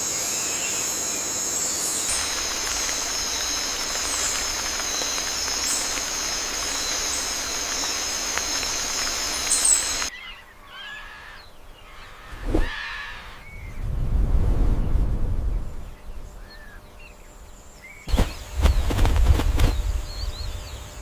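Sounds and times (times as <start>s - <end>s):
high-pitched outdoor ambience: 0.0s - 21.0s
bird chirps: 1.8s - 13.8s
low rumble: 13.4s - 16.5s.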